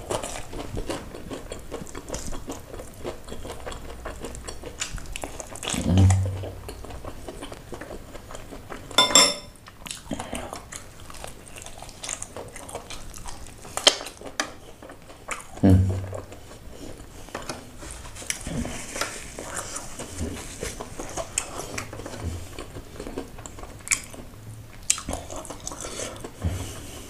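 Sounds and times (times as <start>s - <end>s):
chewing and mouth smacks: 0.0s - 9.0s, 9.6s - 27.0s.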